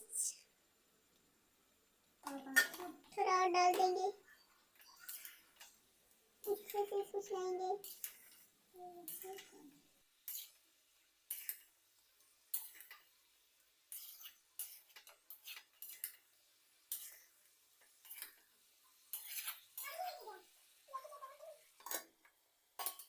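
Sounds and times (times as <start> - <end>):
metal spoon scraping a pot: 4.8 - 5.8, 7.8 - 9.6, 10.2 - 10.6, 11.3 - 11.7, 12.5 - 13.0, 13.9 - 16.3, 16.9 - 18.4, 19.0 - 19.9.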